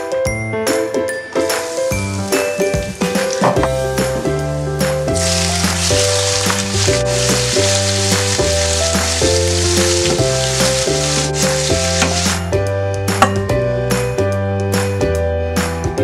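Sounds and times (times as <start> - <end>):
prawns sizzling in oil: 1.4 - 12.5
background music with bass line: 1.9 - 16.0.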